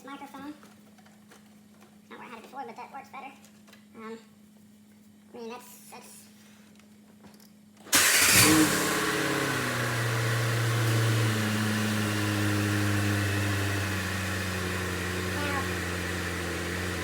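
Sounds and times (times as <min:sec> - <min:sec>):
car engine starting and idling: 0:07.9 - 0:17.0.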